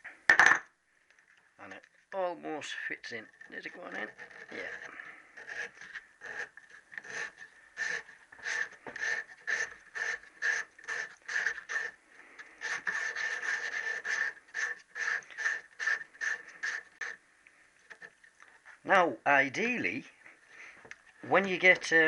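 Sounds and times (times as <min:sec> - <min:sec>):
emery cloth rasping in metal bush: 0:03.4 - 0:17.2.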